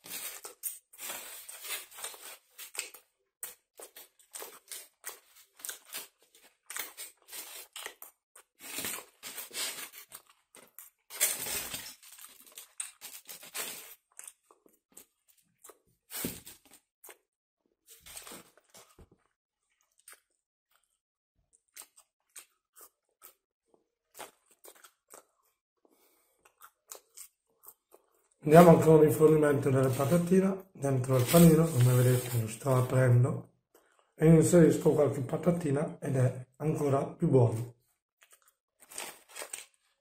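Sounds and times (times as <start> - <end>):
person chewing fries: 0.0 - 17.3, 18.0 - 28.4, 38.2 - 40.0.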